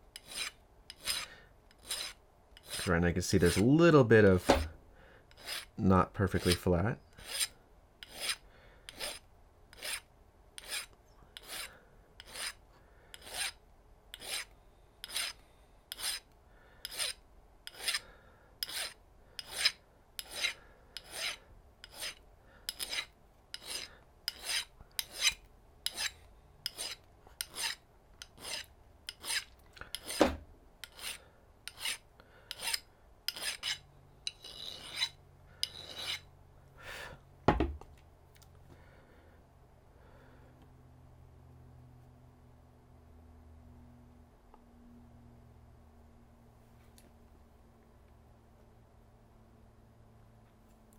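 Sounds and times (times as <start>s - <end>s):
metal ring sanded by hand: 0.2s - 3.8s, 5.4s - 5.7s, 6.3s - 9.2s, 9.8s - 10.0s, 10.6s - 12.6s, 13.2s - 13.6s, 14.2s - 15.4s, 16.0s - 16.2s, 16.9s - 18.0s, 18.6s - 27.8s, 28.4s - 30.2s, 30.9s - 32.0s, 32.6s - 36.3s
loud knock: 37.5s - 37.8s.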